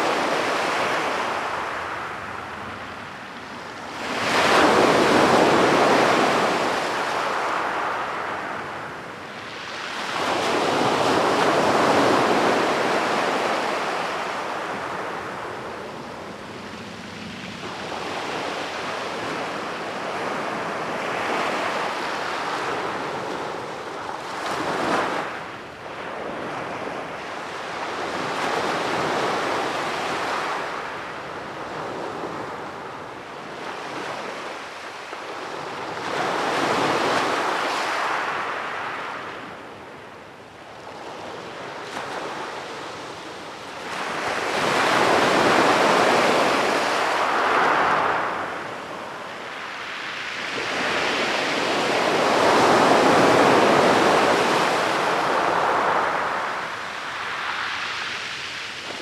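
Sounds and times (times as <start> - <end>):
waves breaking on a beach: 0.0 - 59.0.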